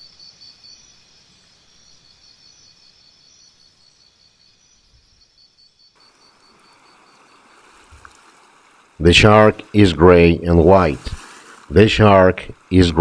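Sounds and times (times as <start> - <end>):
insects chirping: 0.0 - 13.0
faint rushing hiss: 6.0 - 13.0.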